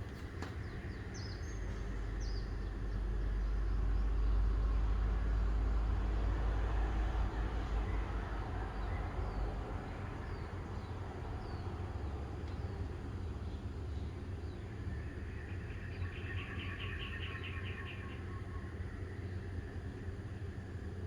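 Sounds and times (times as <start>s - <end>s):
small birds chirping: 0.0s - 4.1s, 8.8s - 19.6s.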